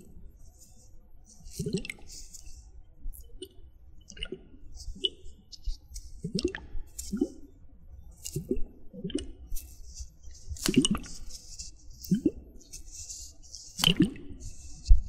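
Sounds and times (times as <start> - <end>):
water splashing and dripping: 13.8 - 14.4.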